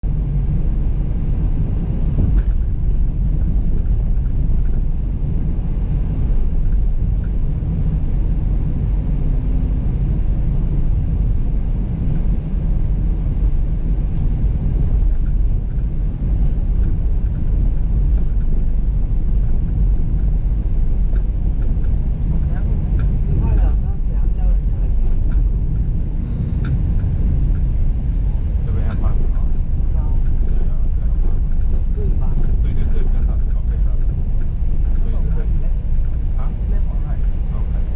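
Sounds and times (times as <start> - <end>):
car interior rumble: 0.0 - 37.9
faint clicks and rattles: 2.2 - 5.5, 6.4 - 7.6, 14.1 - 37.8.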